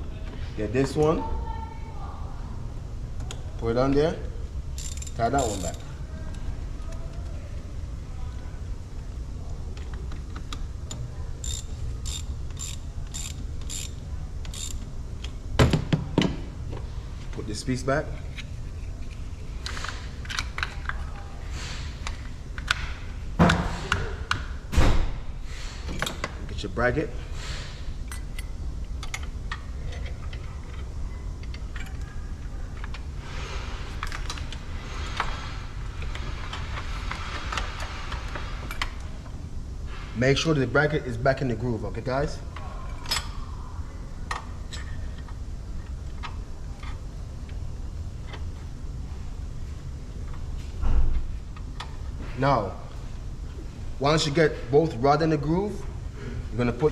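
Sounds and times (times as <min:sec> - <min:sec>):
ratchet clicking: 0:04.7 - 0:05.9, 0:11.4 - 0:15.4.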